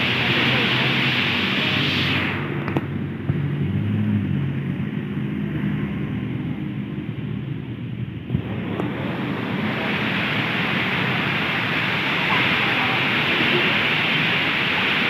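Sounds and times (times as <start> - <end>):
heavy rain falling: 0.0 - 4.0, 7.3 - 15.0
road traffic rumble: 0.0 - 15.0.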